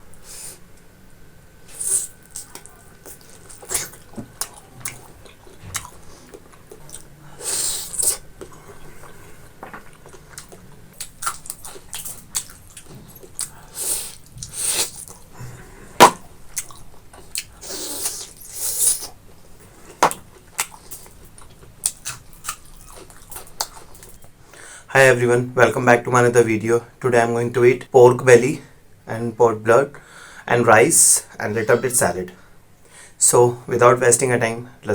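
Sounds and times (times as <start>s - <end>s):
person chewing and smacking: 2.2s - 7.2s, 7.9s - 15.3s, 16.0s - 19.2s, 19.9s - 24.4s.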